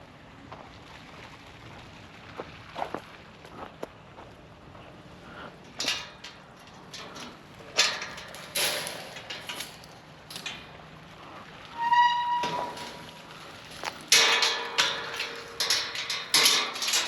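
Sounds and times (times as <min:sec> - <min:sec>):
short high squeak: 0:11.8 - 0:12.7.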